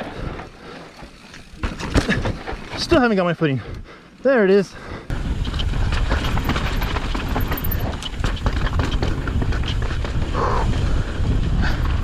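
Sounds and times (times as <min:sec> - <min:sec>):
bike rattling: 0:00.0 - 0:03.4, 0:04.5 - 0:12.0
tyres crunching over dirt and rock: 0:05.1 - 0:10.3
wind on microphone: 0:05.1 - 0:12.0.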